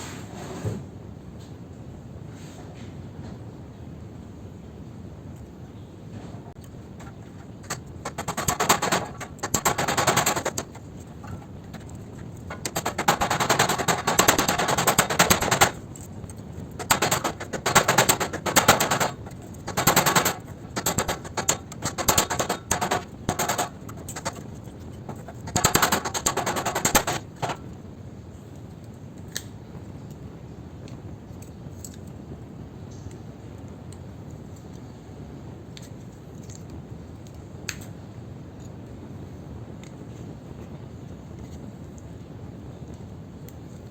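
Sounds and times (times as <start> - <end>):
power tool chattering: 7.0 - 27.7.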